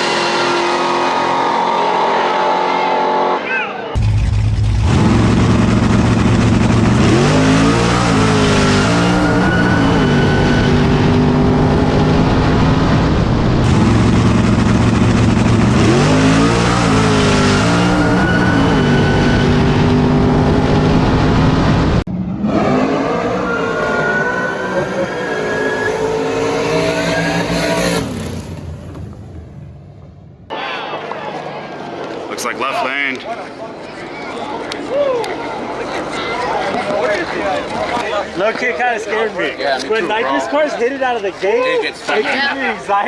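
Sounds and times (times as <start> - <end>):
drag racing cars at full throttle: 0.0 - 32.5.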